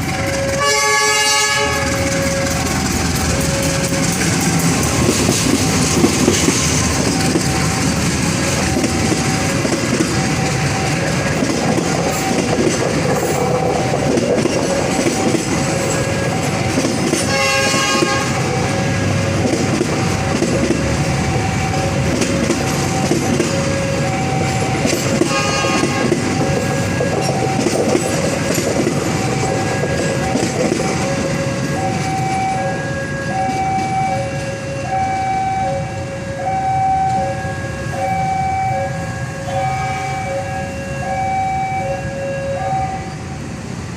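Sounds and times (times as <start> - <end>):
wheels clicking over rail joints: 0.0 - 35.1
two-tone crossing alarm: 0.0 - 43.4
train rumble: 0.0 - 43.9
train horn: 0.1 - 4.3, 17.2 - 19.0, 23.6 - 27.1, 32.5 - 43.2.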